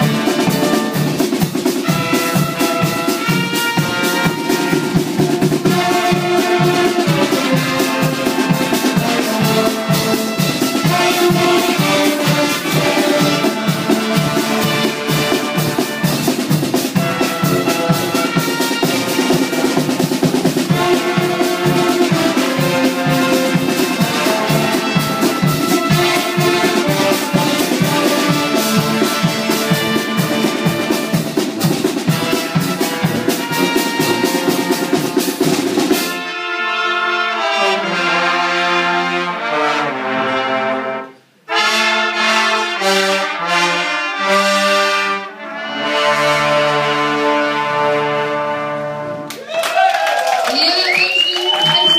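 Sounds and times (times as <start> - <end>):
steady drum beat: 0.0 - 36.3
brass band playing: 0.0 - 49.4, 50.5 - 51.9.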